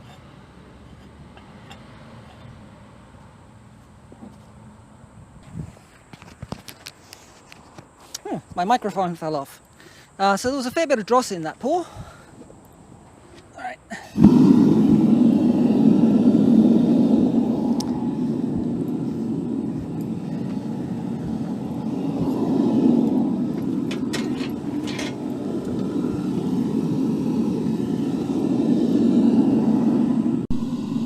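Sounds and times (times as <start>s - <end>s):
forge burner roaring: 14.0s - 31.0s.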